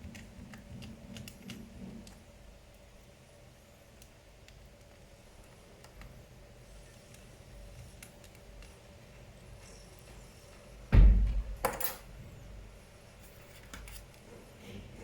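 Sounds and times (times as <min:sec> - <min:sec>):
faint clicks of small parts: 0:00.0 - 0:10.7
knock with deep thud: 0:10.9 - 0:11.6.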